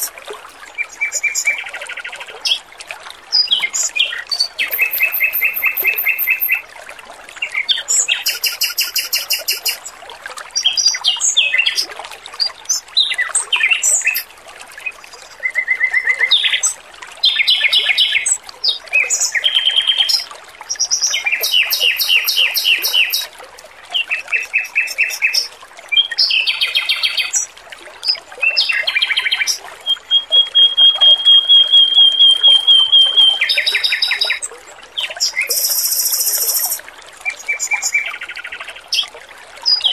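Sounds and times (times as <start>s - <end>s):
water trickling: 0.0s - 39.9s
bird singing trilled phrases: 3.4s - 6.6s, 7.6s - 9.8s, 13.0s - 14.3s, 14.9s - 23.3s, 23.9s - 38.2s.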